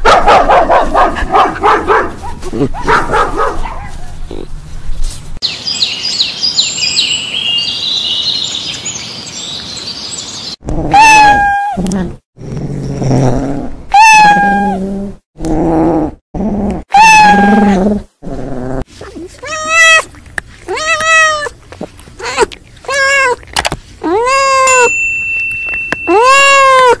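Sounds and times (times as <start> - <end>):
high quick twittering chirps: 5.4 - 10.6.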